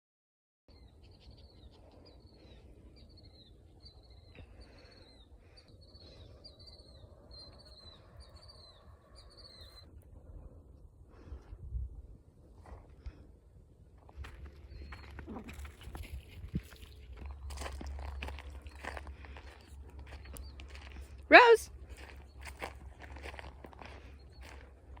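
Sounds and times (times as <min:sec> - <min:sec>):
wind rumble on microphone: 0:06.9 - 0:25.0.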